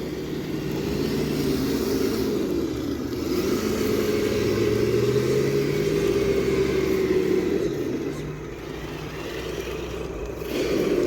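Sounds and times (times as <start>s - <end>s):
toy car motor whining: 0.0s - 11.0s.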